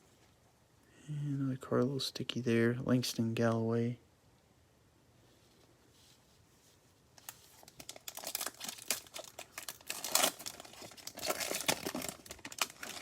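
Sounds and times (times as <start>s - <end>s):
plastic wrapper crinkling and tearing: 7.2s - 13.0s.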